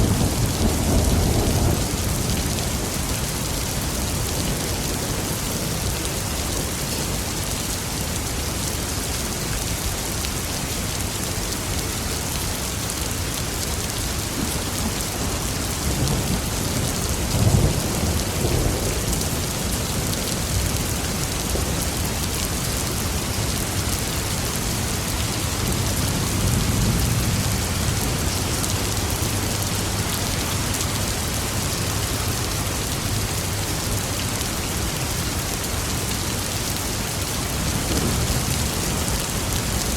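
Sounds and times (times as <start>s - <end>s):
thunder crack and rumble: 0.0s - 5.7s, 14.3s - 30.9s, 37.5s - 39.9s
heavy rain falling: 0.0s - 39.9s.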